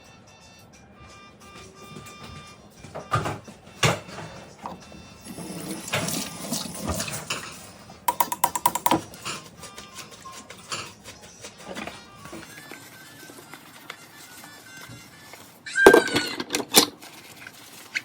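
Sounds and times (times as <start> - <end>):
dishes and utensils clinking: 2.9 - 12.5, 15.7 - 17.0.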